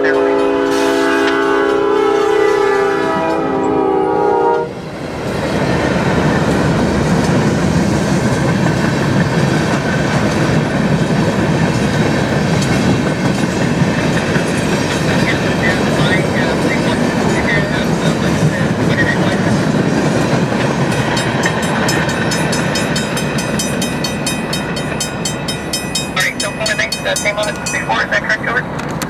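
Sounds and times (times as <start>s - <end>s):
locomotive air horn: 0.0s - 4.8s
train rumbling and clattering: 0.0s - 29.0s.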